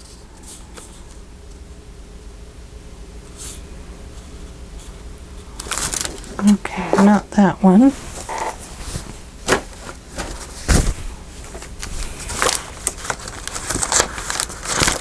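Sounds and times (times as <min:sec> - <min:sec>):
paper rustling: 0:05.6 - 0:15.0.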